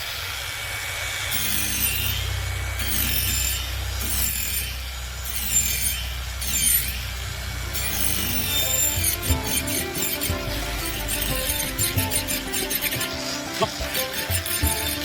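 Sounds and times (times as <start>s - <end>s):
angle grinder motor running: 0.0s - 15.0s
grinder disc rasping wood: 1.0s - 15.0s.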